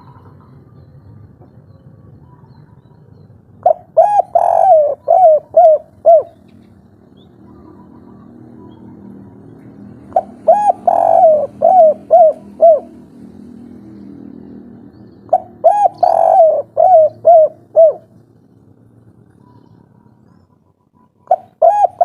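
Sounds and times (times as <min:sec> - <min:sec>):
dove cooing: 0:03.6 - 0:06.8, 0:10.0 - 0:13.1, 0:15.3 - 0:18.2, 0:19.2 - 0:22.0.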